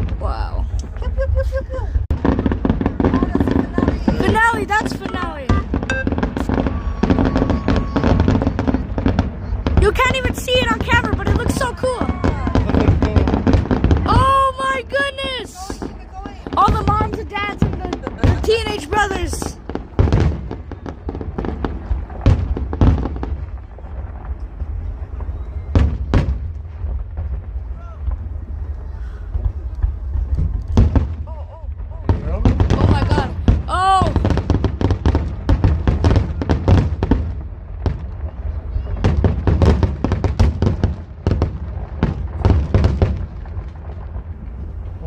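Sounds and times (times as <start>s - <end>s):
loud firework bangs: 0.0s - 45.0s
firework shells bursting: 2.0s - 14.2s
crackling firework pops: 15.0s - 45.0s.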